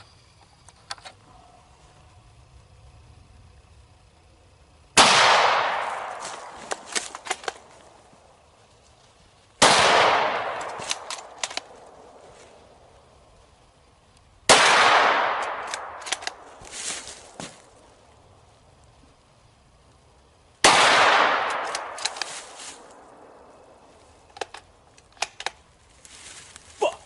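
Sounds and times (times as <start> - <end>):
rifle shots with echo: 5.0 - 7.6, 9.6 - 12.2, 14.5 - 16.5, 20.6 - 23.4
sharp clicks: 6.0 - 7.9, 10.4 - 12.0, 15.0 - 16.5, 21.4 - 23.0, 24.2 - 25.7.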